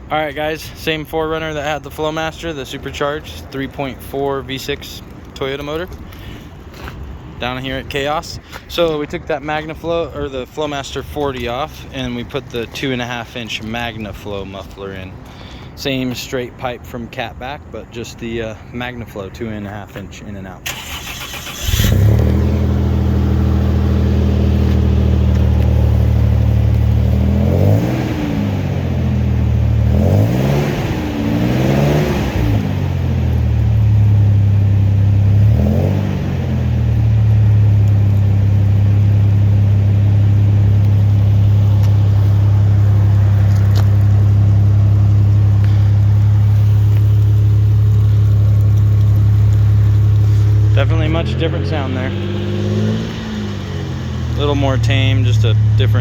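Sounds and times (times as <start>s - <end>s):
car engine starting and idling: 20.4s - 56.0s
engine revving: 20.7s - 56.0s.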